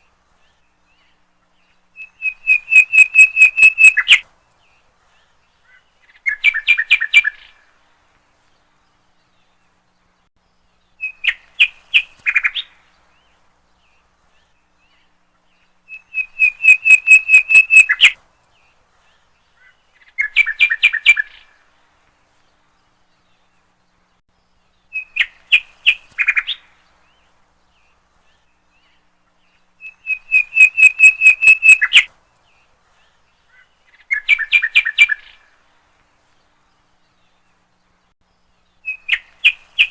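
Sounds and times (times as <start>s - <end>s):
small bird chirping: 0.0s - 7.7s, 8.6s - 21.6s, 22.4s - 35.6s, 36.2s - 39.9s.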